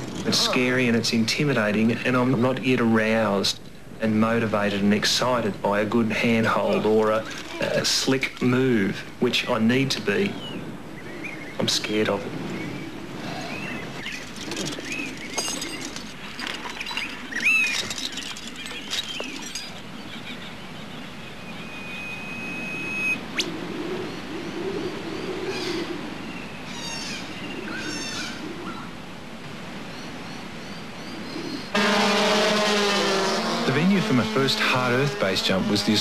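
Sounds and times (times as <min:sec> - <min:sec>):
birds whistling: 0:10.2 - 0:28.9.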